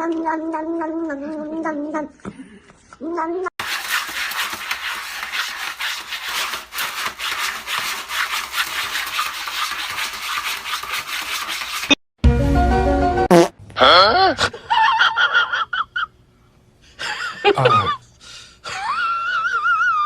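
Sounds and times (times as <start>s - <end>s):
rapid scratching on hard surface: 3.6s - 12.0s.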